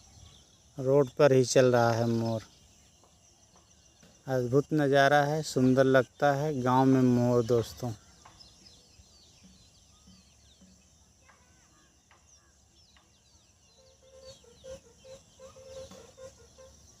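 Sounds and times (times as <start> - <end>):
small birds chirping: 0.0 - 17.0
fowl clucking: 14.0 - 17.0.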